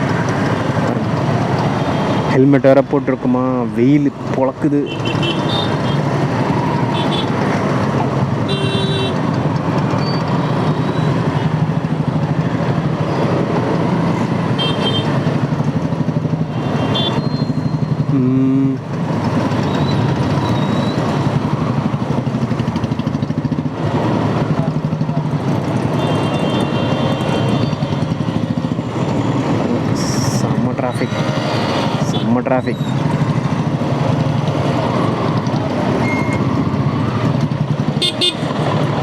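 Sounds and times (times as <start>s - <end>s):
road and wind noise: 0.0s - 39.0s
vehicle horns beeping: 4.9s - 6.0s, 6.9s - 7.4s, 8.4s - 9.4s, 14.5s - 15.2s, 16.5s - 18.0s, 25.8s - 28.2s, 37.9s - 38.8s
motorcycle engine running: 4.9s - 30.7s, 32.8s - 39.0s.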